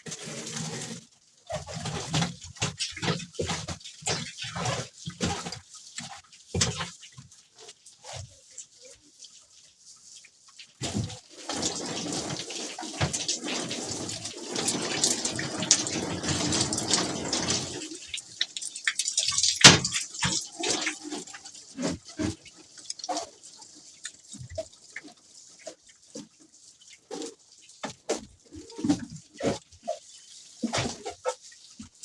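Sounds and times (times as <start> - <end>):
water splashing from a hose: 0.0 - 32.0
water dripping: 1.4 - 32.0.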